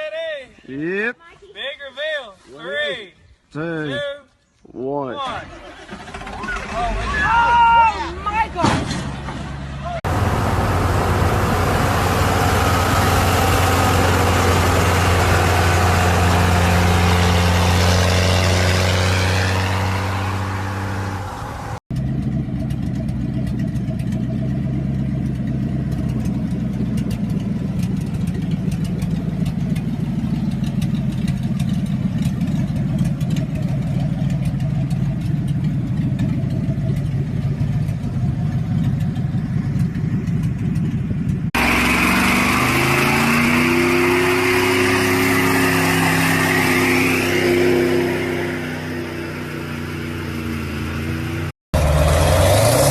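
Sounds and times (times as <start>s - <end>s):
rough truck engine rumble: 8.0s - 52.9s
truck engine running: 10.0s - 52.9s.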